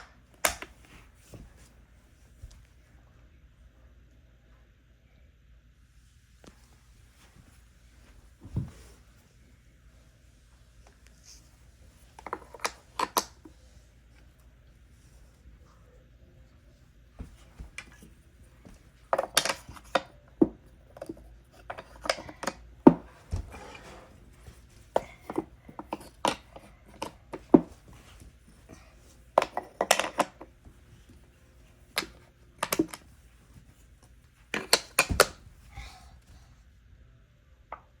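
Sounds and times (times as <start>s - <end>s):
wooden puzzle pieces clacking: 29.4s - 30.5s.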